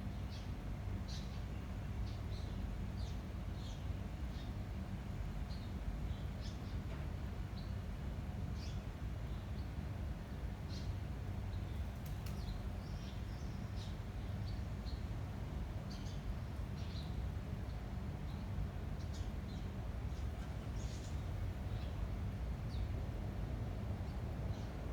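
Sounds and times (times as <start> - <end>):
small birds chirping: 10.7 - 23.0.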